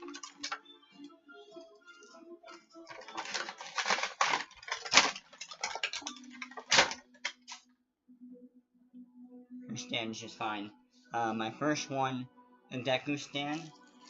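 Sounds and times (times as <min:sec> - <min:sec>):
packaging crackling and tapping: 0:00.0 - 0:00.6, 0:02.8 - 0:07.6.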